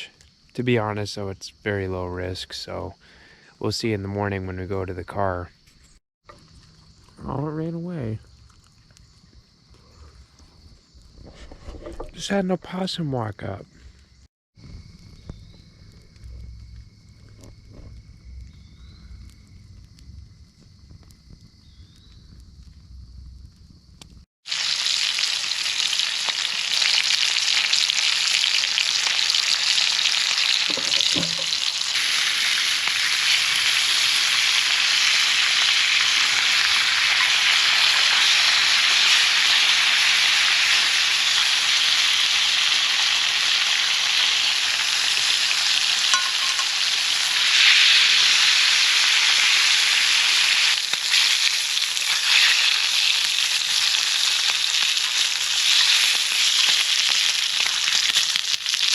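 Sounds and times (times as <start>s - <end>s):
dense high-pitched hiss: 0.0s - 5.9s, 30.7s - 57.5s.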